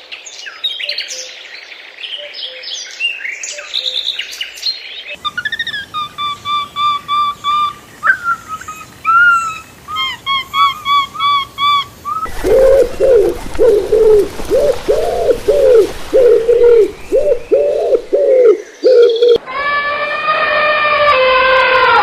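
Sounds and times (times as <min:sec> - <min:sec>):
lower arched bird call: 0:05.2 - 0:19.4
background hiss: 0:11.8 - 0:19.4.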